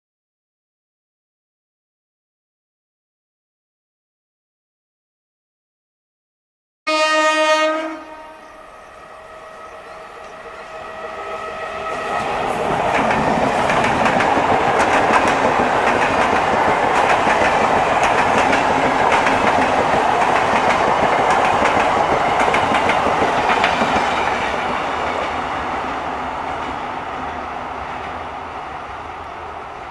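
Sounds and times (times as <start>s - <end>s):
train wheels clickety-clack over rail joints: 10.2s - 29.9s.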